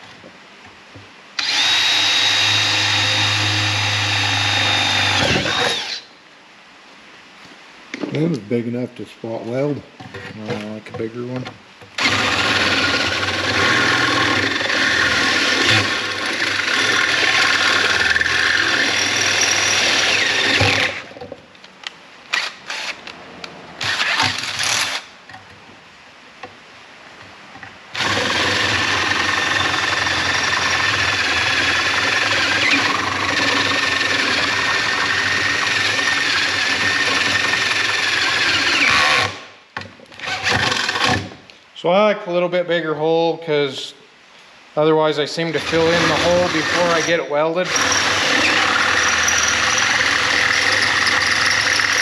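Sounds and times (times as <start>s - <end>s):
power drill boring through sheet steel: 1.4s - 6.1s, 12.0s - 21.1s, 23.8s - 25.0s, 28.0s - 39.4s, 40.2s - 41.3s, 45.5s - 52.0s.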